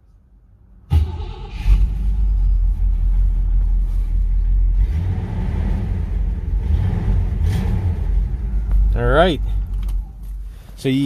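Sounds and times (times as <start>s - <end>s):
car engine idling: 0.9s - 11.0s.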